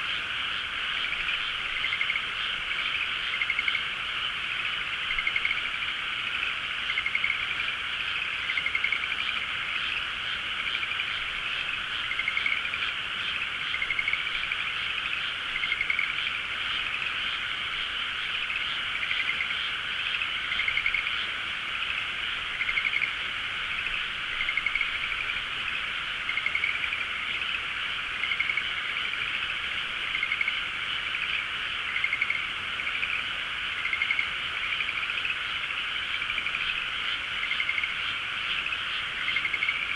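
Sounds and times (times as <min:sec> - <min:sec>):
frogs chorus: 0:00.0 - 0:39.9
rising frog calls: 0:00.0 - 0:39.9.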